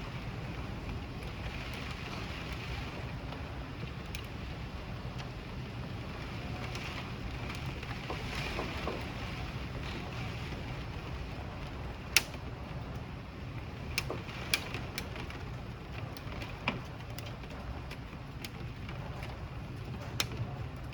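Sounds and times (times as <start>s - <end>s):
low rumble of storm: 0.0s - 20.9s.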